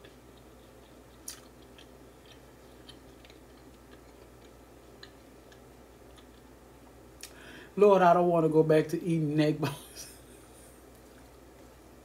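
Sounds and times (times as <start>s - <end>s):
mouth chewing clicks: 0.0s - 6.5s
low steady hum: 0.0s - 12.0s.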